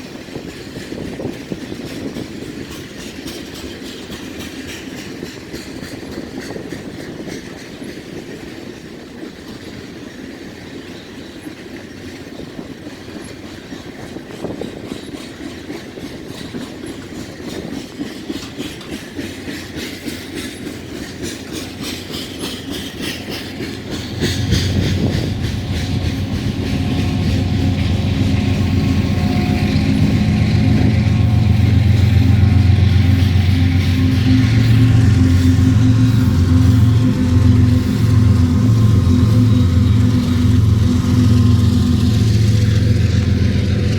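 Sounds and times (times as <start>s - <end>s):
train wheels clicking over rail joints: 0.0s - 43.9s
loud steady engine drone: 23.1s - 43.9s.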